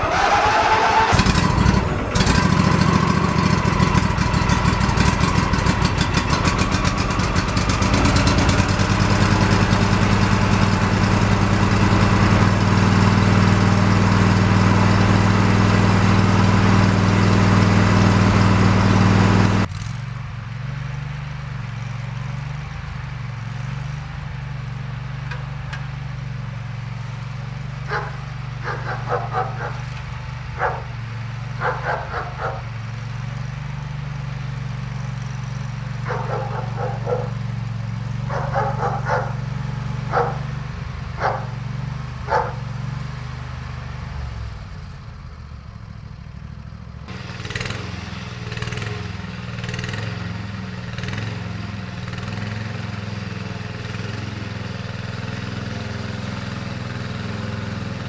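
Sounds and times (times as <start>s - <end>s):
lawn tractor engine running: 0.0s - 58.0s
dog barking: 27.9s - 29.9s, 30.6s - 30.9s, 31.6s - 32.7s, 36.0s - 37.4s, 38.3s - 39.4s, 40.1s - 40.5s, 41.2s - 41.6s, 42.3s - 42.7s.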